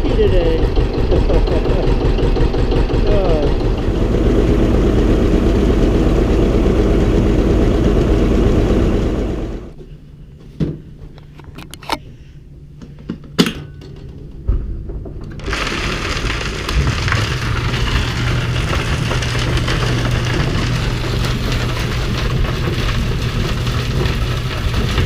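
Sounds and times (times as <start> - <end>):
tractor engine running: 0.2 - 9.8, 15.4 - 25.0
steady noise with low hum: 3.0 - 15.6.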